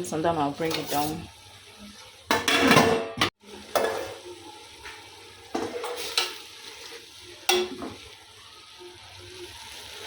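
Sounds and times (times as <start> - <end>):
faint sizzle: 0.0 - 10.0
spoon scraping a pot: 0.6 - 1.3, 5.6 - 7.9.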